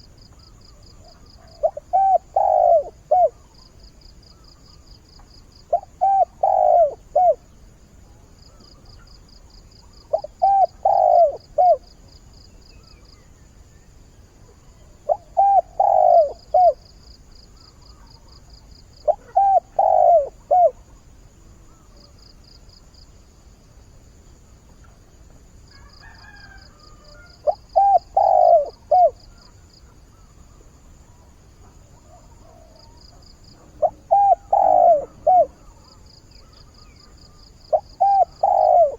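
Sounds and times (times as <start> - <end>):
dove cooing: 1.0 - 3.5, 5.6 - 7.6, 10.0 - 11.9, 14.8 - 16.9, 19.0 - 20.9, 25.8 - 30.4, 31.7 - 38.9.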